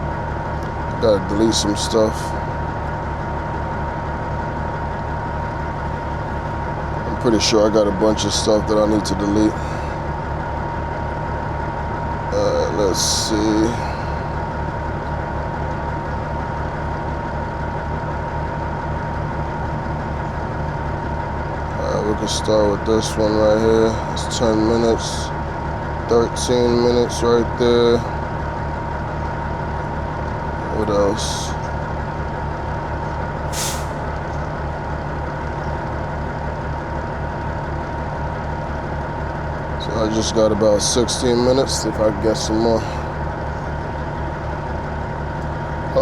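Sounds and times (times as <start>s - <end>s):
diesel truck engine idling: 0.0s - 46.0s
short air hiss: 33.5s - 34.0s.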